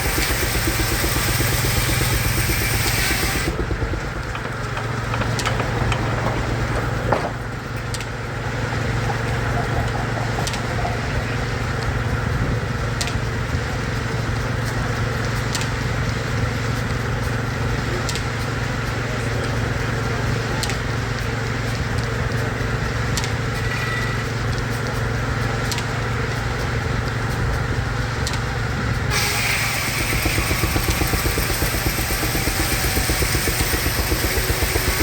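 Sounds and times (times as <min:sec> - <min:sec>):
loud steam hissing rush: 0:00.0 - 0:03.6, 0:28.8 - 0:35.0
sawmill machinery humming: 0:00.0 - 0:35.0
scattered clicks: 0:03.4 - 0:08.1.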